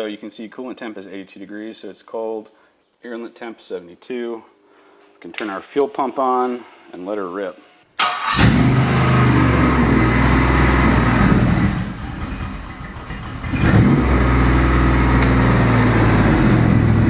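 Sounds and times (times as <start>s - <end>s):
car engine starting and idling: 5.4s - 17.0s.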